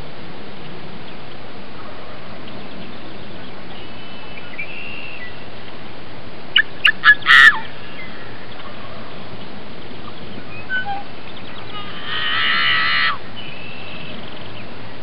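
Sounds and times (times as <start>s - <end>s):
steady hiss: 0.0s - 15.0s
bird calling sharp notes: 6.6s - 9.0s, 10.0s - 14.6s.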